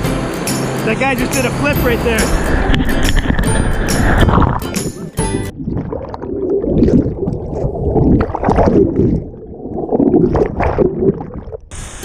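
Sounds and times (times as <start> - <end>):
river water rushing and splashing: 0.0 - 5.2.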